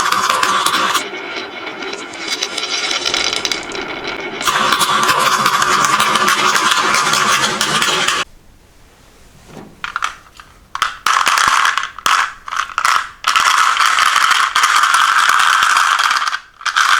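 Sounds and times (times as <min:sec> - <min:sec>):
marbles rolling down a marble run: 0:02.7 - 0:08.2, 0:10.8 - 0:16.9.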